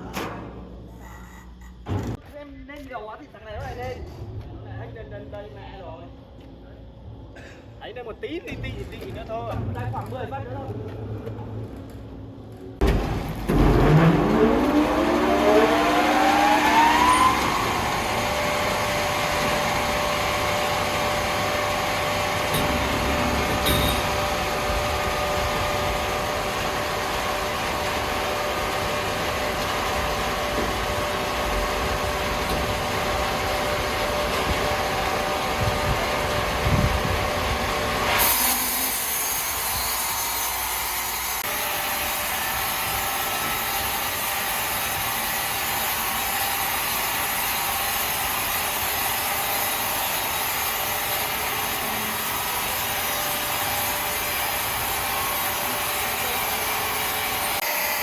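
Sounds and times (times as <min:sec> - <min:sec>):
saw cutting log: 0:37.9 - 0:58.0.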